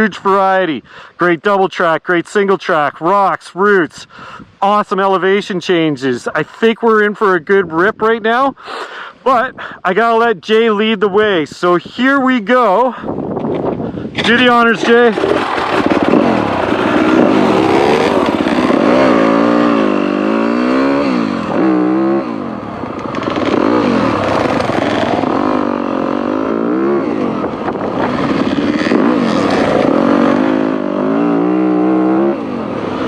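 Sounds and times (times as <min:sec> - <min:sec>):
dirt bike engine revving: 0:14.2 - 0:33.0.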